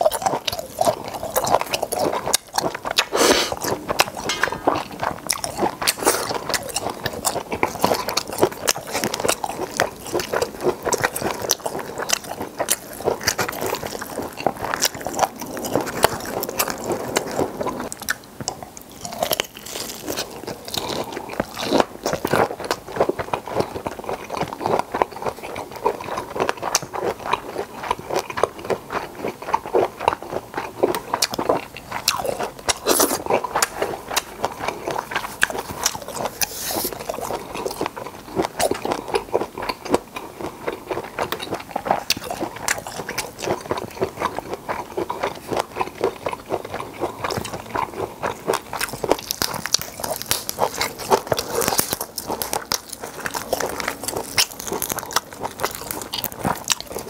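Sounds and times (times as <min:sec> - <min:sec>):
wet chewing and lip-smacking: 0:00.0 - 0:57.0
prawn shell crackling as peeled: 0:48.5 - 0:57.0.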